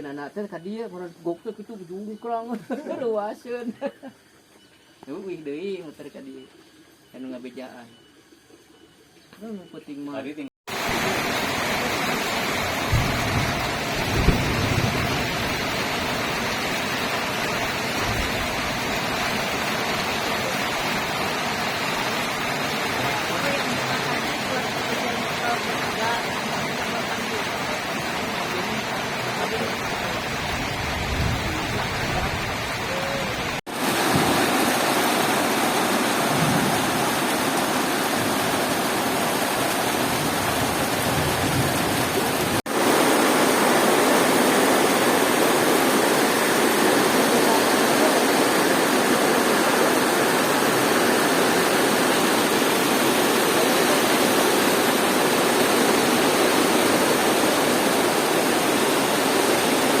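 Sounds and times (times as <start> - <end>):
heavy rain falling: 10.7 - 60.0.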